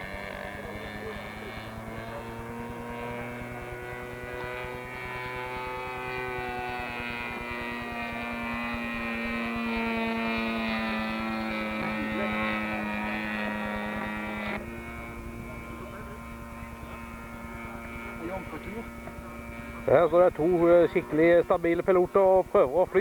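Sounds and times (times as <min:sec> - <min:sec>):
model plane propeller engine: 0:00.0 - 0:23.0.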